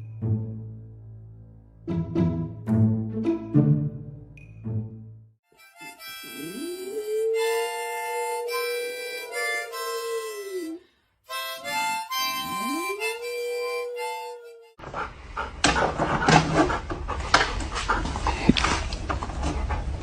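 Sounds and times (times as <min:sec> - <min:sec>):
harmonica chords: 0:05.5 - 0:14.8
dog howling: 0:06.3 - 0:10.8, 0:11.6 - 0:14.8.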